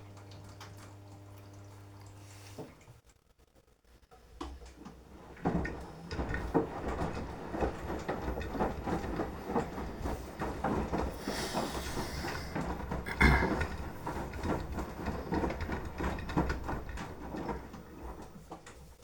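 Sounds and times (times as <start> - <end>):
washing machine drum tumbling: 5.1 - 19.0.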